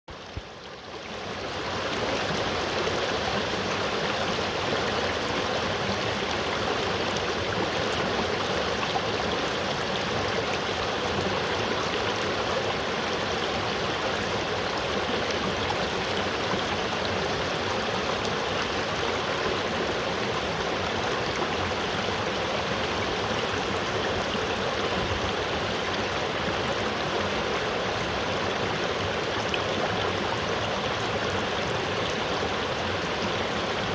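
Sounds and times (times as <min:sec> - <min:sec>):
river water flowing: 0:00.1 - 0:33.9.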